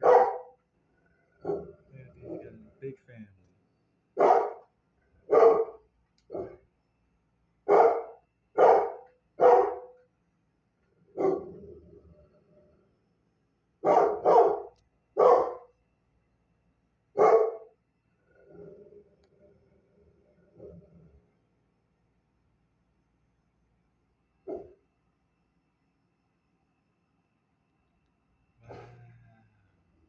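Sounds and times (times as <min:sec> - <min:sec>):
dog barking: 0:00.0 - 0:00.6, 0:01.4 - 0:02.6, 0:04.2 - 0:06.6, 0:07.7 - 0:10.0, 0:11.1 - 0:11.6, 0:13.8 - 0:15.7, 0:17.2 - 0:17.8, 0:24.5 - 0:24.8.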